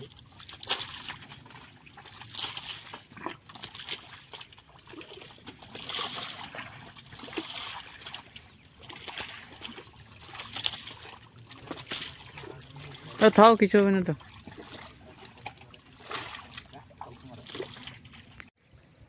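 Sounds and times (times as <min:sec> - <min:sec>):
mud and water sloshing: 0:00.0 - 0:18.5.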